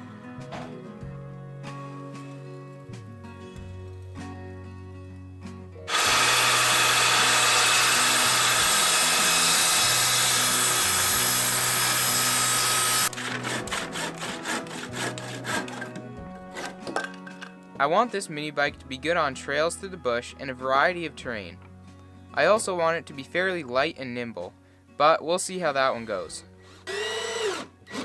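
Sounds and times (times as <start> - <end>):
background music: 0.0 - 28.0
power tool working wood: 5.9 - 16.7, 26.7 - 28.0.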